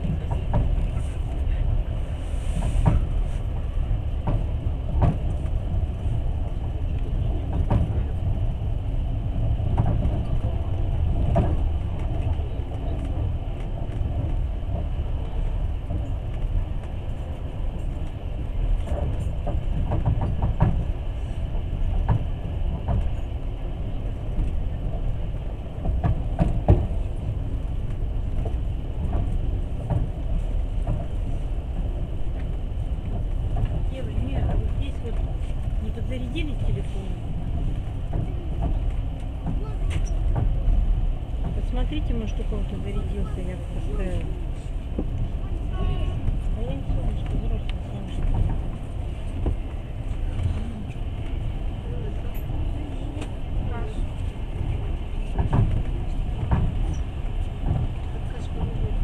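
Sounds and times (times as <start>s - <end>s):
train wheels rumbling on rails: 0.0s - 59.0s
sharp knocks and clicks: 18.9s - 20.9s.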